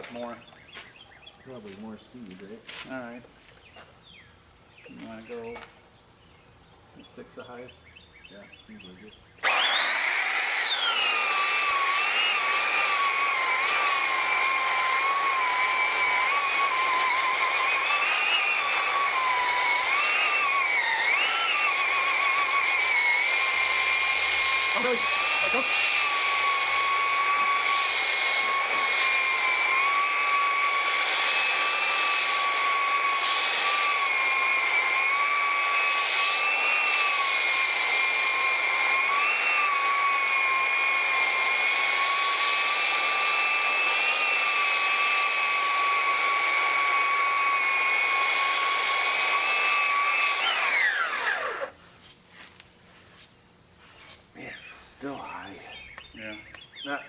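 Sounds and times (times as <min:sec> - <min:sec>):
electric power tool whining: 0:00.0 - 0:00.8, 0:09.4 - 0:51.8
motor winding down: 0:09.4 - 0:51.8.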